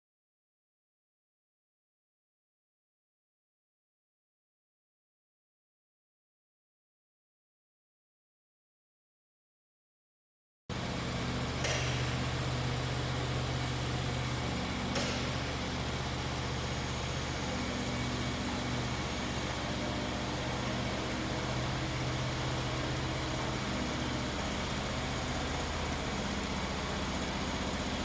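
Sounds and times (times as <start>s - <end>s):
sawmill machine hum: 10.7s - 28.0s.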